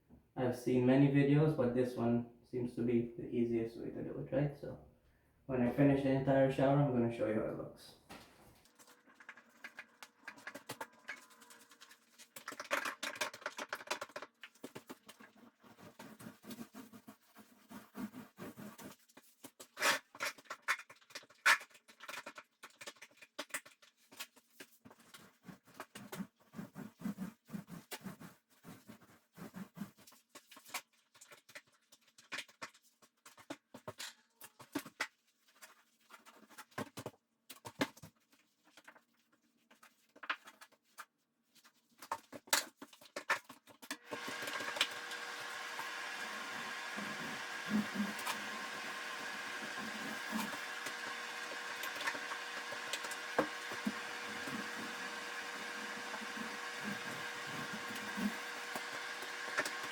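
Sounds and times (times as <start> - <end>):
machine hum with whine: 44.1 - 59.9.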